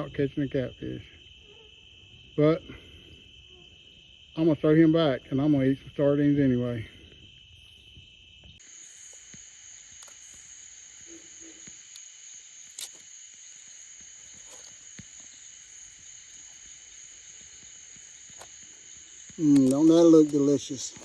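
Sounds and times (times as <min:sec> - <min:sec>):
insects trilling: 0:00.0 - 0:21.0
small clicks: 0:09.1 - 0:21.0.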